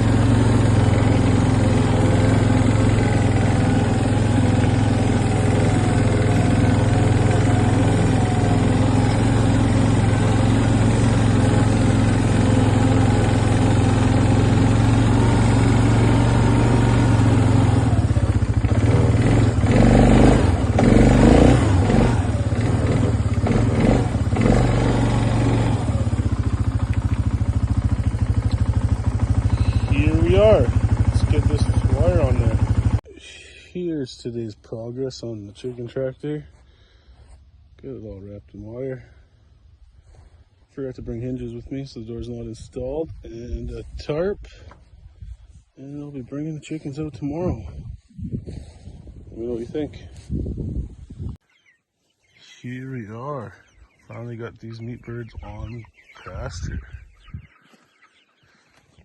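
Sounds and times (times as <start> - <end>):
engine idling: 0.0 - 40.6.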